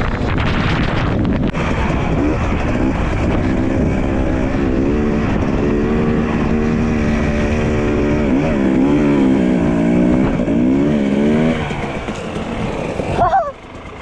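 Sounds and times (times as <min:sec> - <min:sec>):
dirt bike engine under throttle: 0:00.0 - 0:14.0
low wind rumble: 0:00.0 - 0:14.0.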